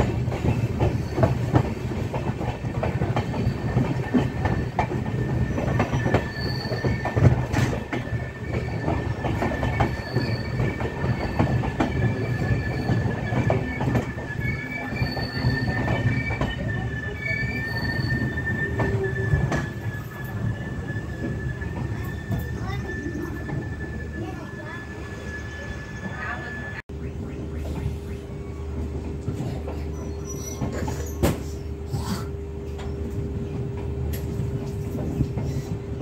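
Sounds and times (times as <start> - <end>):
wheel and brake squeal: 0.0 - 1.6, 3.0 - 26.8, 29.4 - 31.6
train running gear rumble: 0.0 - 36.0.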